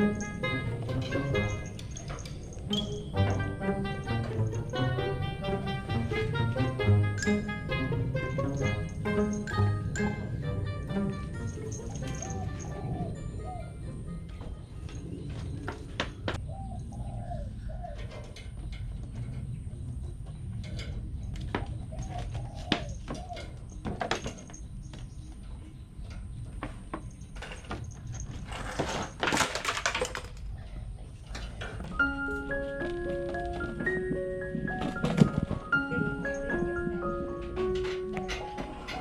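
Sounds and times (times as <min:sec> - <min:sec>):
birds calling: 0:00.0 - 0:27.4
scattered clicks and knocks: 0:32.8 - 0:39.0.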